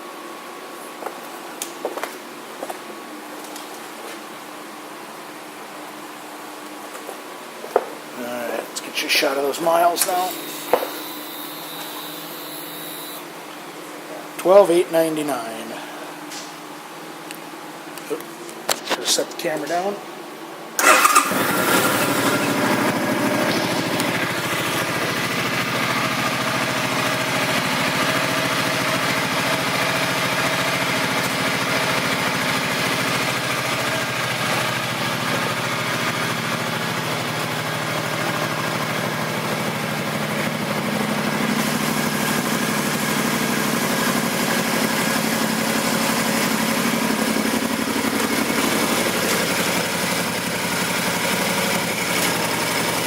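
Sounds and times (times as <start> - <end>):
motorcycle engine idling: 20.8 - 53.0.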